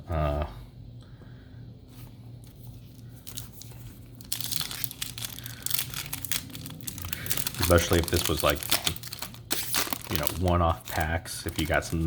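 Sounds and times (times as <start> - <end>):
foil wrapper crinkling and tearing: 3.2 - 12.0.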